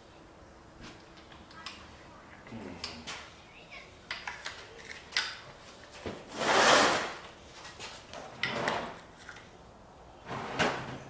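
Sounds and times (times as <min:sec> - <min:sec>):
plastic cases sliding on a rack: 0:06.3 - 0:07.2, 0:10.3 - 0:11.0.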